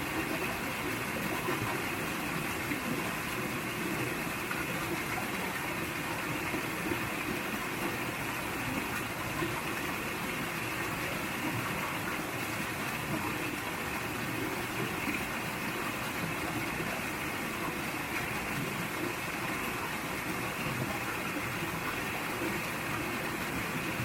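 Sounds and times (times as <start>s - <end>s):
stream running over rocks: 0.0s - 24.0s.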